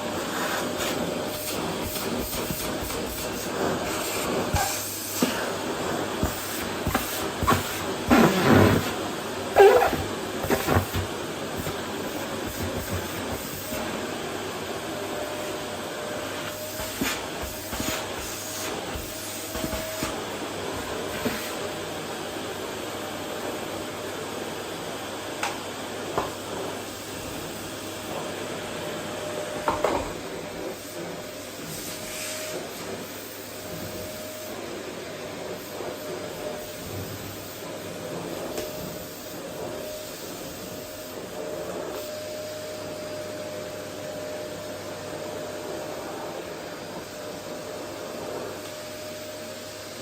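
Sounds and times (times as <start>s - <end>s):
vacuum cleaner running: 0.0s - 50.0s.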